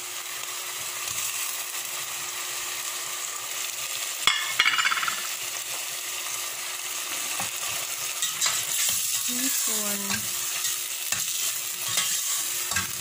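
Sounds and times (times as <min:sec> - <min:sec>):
shrimp sizzling in hot oil: 0:00.0 - 0:13.0.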